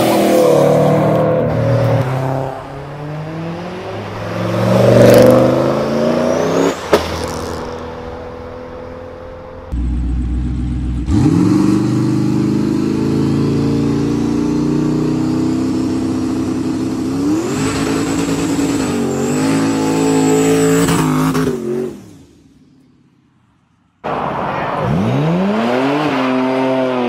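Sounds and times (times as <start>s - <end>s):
car engine accelerating hard: 9.8s - 21.9s.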